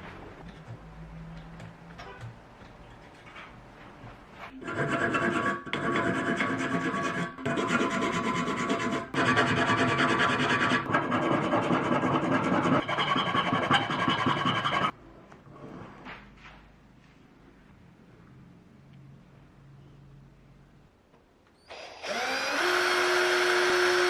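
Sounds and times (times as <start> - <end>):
metal filing rasping: 4.6 - 14.9.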